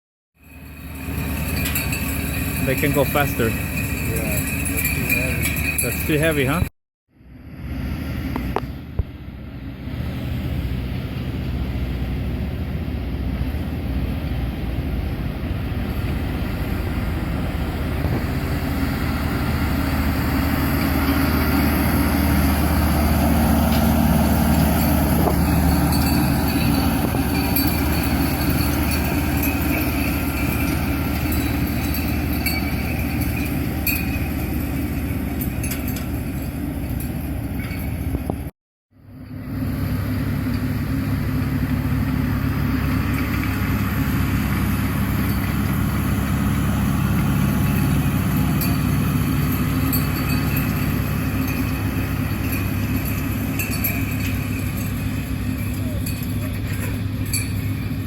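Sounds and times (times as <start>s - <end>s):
tractor running: 0.4s - 58.0s
light rattles: 0.8s - 6.6s, 20.2s - 38.4s, 44.5s - 58.0s.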